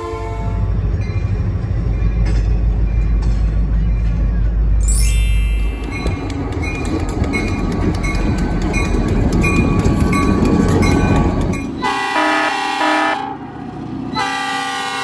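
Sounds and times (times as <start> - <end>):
train rumbling by: 0.0 - 15.0
train wheels clicking: 5.4 - 12.1
train air horn: 11.8 - 13.4, 14.2 - 15.0.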